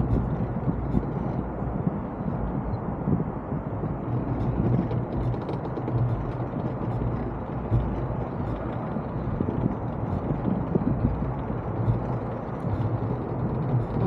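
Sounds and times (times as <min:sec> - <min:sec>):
wind rumble: 0:00.0 - 0:14.0
faint splashes and ticks: 0:04.0 - 0:14.0.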